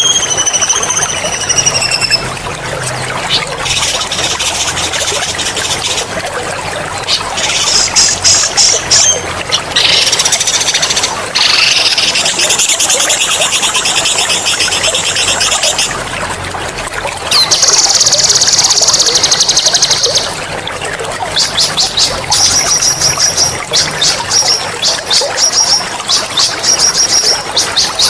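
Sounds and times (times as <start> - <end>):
songbird trilling: 0.0 - 2.3, 3.3 - 6.1, 7.1 - 15.9
water trickling: 0.0 - 28.0.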